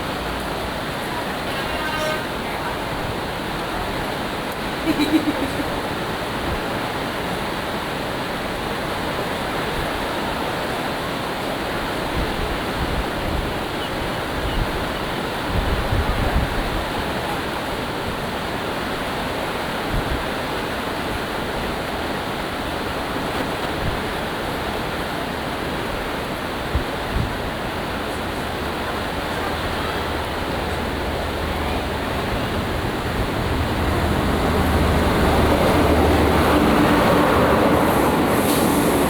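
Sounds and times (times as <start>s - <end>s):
surf pounding sea wall: 0.0s - 39.0s
wind on microphone: 12.1s - 17.3s, 19.8s - 20.4s, 25.9s - 28.8s, 30.1s - 39.0s
train engine drone: 27.5s - 39.0s.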